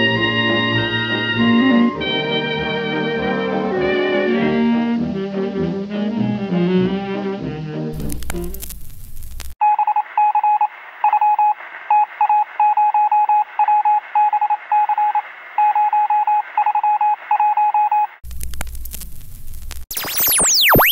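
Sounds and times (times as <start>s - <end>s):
record click: 8.0s - 9.6s
morse code beeps over radio: 9.6s - 18.2s.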